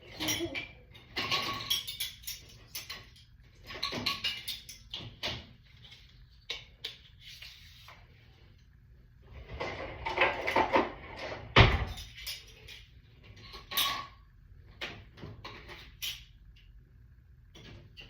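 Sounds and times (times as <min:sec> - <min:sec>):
dishes clinking and knocking: 0:00.0 - 0:07.1, 0:09.4 - 0:16.3.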